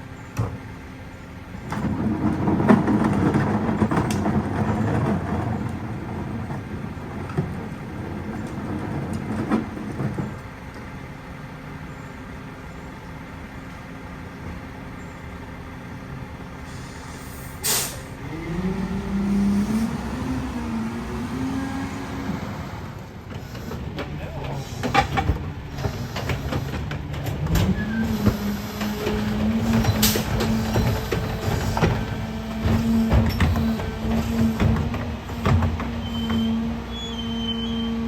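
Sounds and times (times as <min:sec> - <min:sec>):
garbage truck engine revving: 0:16.2 - 0:38.0
air-brake hiss: 0:16.6 - 0:18.2.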